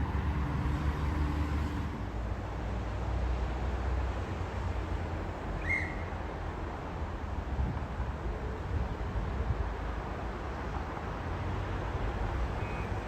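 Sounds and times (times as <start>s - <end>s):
motor vehicle rumble: 0.0s - 2.5s.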